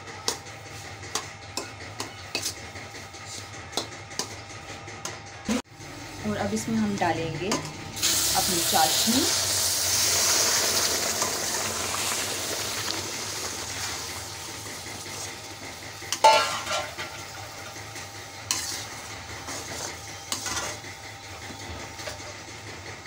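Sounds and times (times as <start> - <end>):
spoon stirring and scraping: 0.2 - 4.4, 16.1 - 22.4
syrup sizzling in a pan: 8.0 - 17.8.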